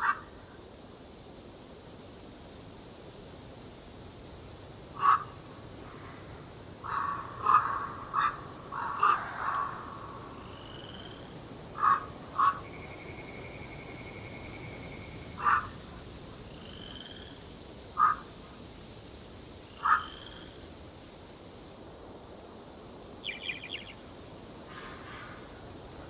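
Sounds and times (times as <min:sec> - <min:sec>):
bird harsh calls: 0:05.0 - 0:05.3, 0:06.8 - 0:11.2, 0:11.8 - 0:12.8, 0:15.4 - 0:15.8, 0:19.7 - 0:20.4, 0:23.2 - 0:24.0
bird high trill: 0:23.2 - 0:24.0
thin bird whistles: 0:23.3 - 0:24.0.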